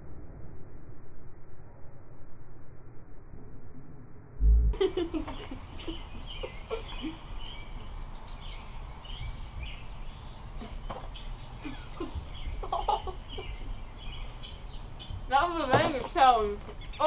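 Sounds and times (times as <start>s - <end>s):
birds chirping: 4.8s - 17.0s.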